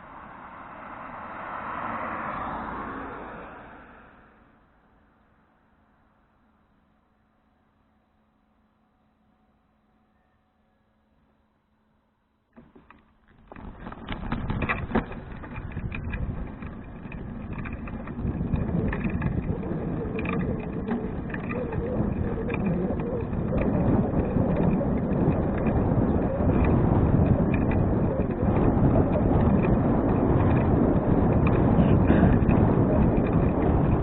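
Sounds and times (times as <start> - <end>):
bicycle tyre rumble: 12.6 - 34.0
wind rush on microphone: 12.6 - 34.0.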